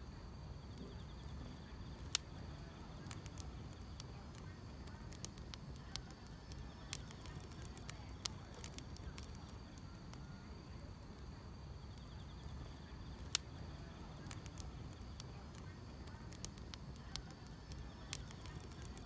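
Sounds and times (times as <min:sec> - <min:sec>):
insects trilling: 0:00.0 - 0:19.0
low fire rumble: 0:00.0 - 0:19.0
wood fire crackling: 0:00.0 - 0:19.0.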